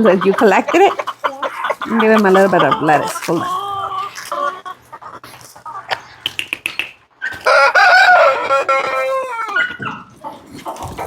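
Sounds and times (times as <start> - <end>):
rooster crowing: 7.4 - 9.7.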